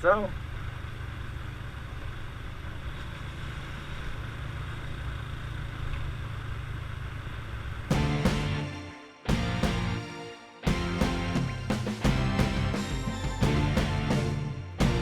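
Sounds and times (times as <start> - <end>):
background music: 7.9 - 15.0.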